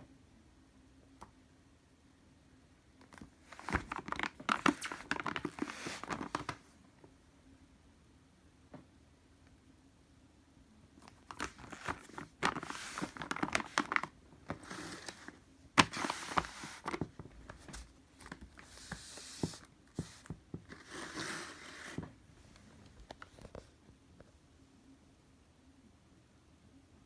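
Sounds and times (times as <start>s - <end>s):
plastic packaging crinkling: 3.0s - 6.7s, 11.0s - 22.1s.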